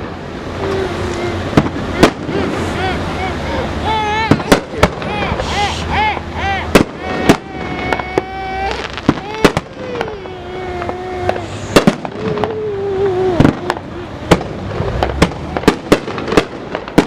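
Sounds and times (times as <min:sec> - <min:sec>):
fireworks bangs and pops: 0:01.5 - 0:02.6, 0:04.2 - 0:05.7, 0:06.7 - 0:17.0.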